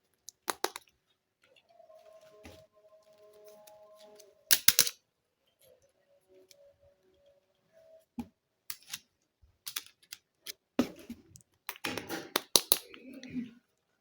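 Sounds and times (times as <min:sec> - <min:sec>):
plastic toy pieces clicking: 0:00.2 - 0:00.9, 0:04.5 - 0:05.0, 0:08.7 - 0:09.0, 0:09.6 - 0:10.6, 0:11.7 - 0:13.0.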